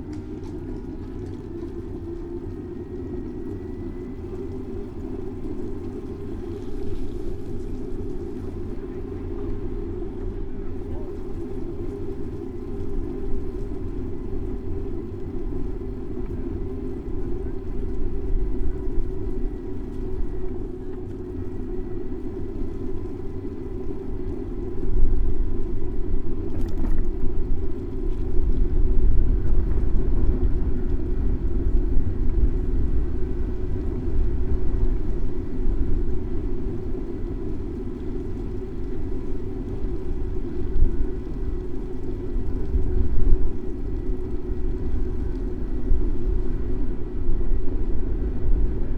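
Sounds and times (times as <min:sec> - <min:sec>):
wind noise: 0:22.4 - 0:48.9.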